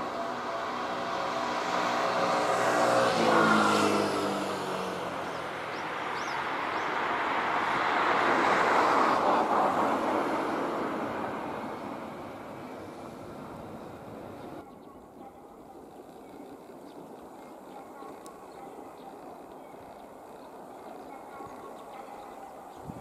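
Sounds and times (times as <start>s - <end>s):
vehicle engine passing: 0.0s - 14.6s.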